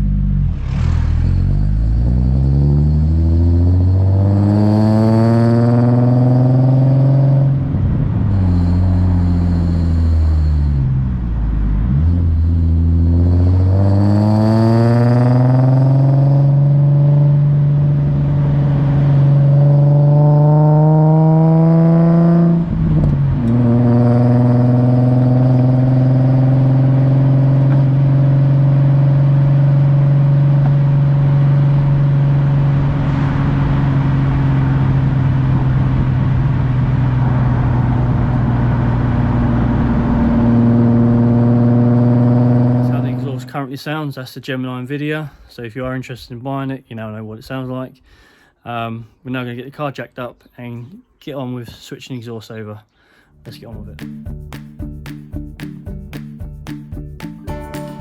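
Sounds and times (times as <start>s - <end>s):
car engine revving: 0.0s - 43.7s.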